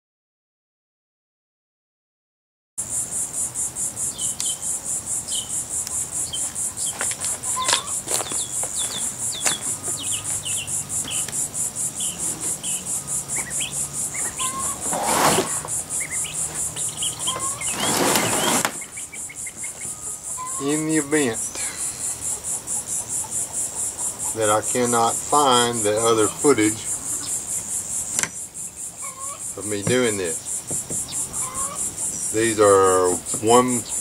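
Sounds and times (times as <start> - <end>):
insects chirring: 2.8 - 34.0
bird chirps: 4.0 - 34.0
short rushing noises: 14.2 - 15.9, 16.6 - 18.9.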